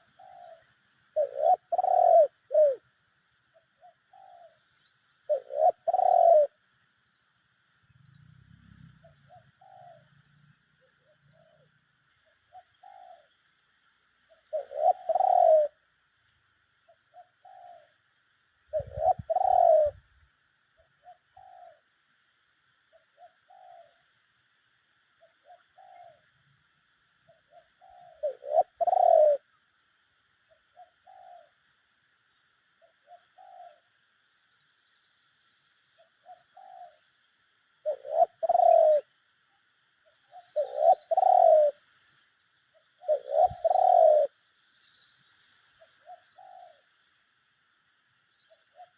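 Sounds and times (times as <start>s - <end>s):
dove cooing: 0.0s - 2.8s, 3.8s - 4.6s, 5.3s - 6.6s, 8.9s - 10.1s, 12.5s - 13.3s, 14.5s - 15.8s, 17.0s - 17.9s, 18.7s - 20.0s, 21.0s - 21.8s, 22.9s - 24.0s, 25.2s - 26.3s, 27.3s - 29.5s, 30.6s - 31.6s, 32.8s - 33.9s, 36.2s - 37.0s, 37.8s - 39.1s, 40.2s - 41.9s, 42.8s - 44.4s, 45.9s - 46.9s
faint dove coos: 0.0s - 2.9s, 3.6s - 6.6s, 8.7s - 11.8s, 12.4s - 13.4s, 14.3s - 15.8s, 16.9s - 18.0s, 18.7s - 20.1s, 20.8s - 21.9s, 22.9s - 24.1s, 25.2s - 26.4s, 27.3s - 29.5s, 30.5s - 31.6s, 32.8s - 34.0s, 36.0s - 37.0s, 37.8s - 39.2s, 40.1s - 41.9s, 42.7s - 44.4s, 45.8s - 46.9s.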